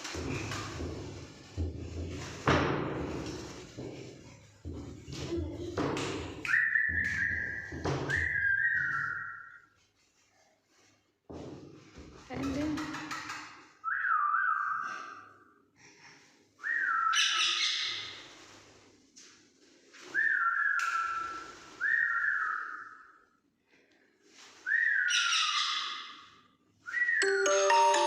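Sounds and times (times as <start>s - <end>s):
rougher high sounds: 27.2s - 28.0s.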